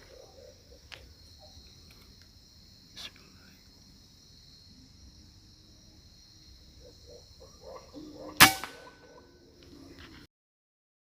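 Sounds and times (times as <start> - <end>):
insects chirring: 0.0 - 10.3
gunshot: 8.4 - 8.9.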